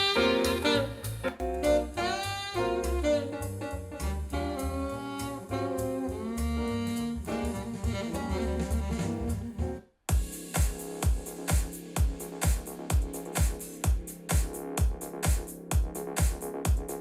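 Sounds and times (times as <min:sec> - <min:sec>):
jazz saxophone over bass: 0:00.0 - 0:09.8.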